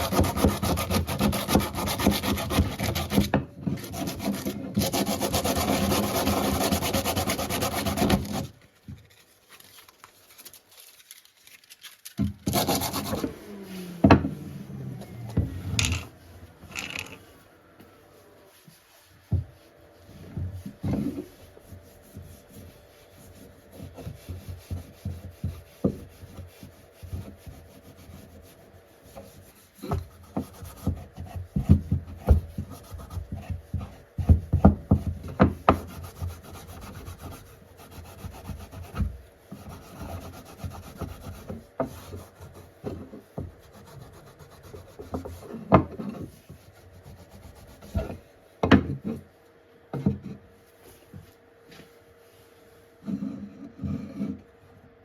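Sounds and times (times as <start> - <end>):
hand rubbing on wood: 18.0 - 34.2, 43.5 - 45.6, 46.3 - 48.3.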